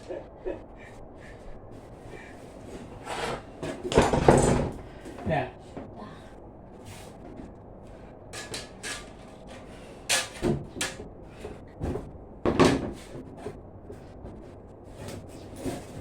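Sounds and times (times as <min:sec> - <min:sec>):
knocks and clatters of repair work: 0:02.1 - 0:06.0, 0:07.2 - 0:16.0.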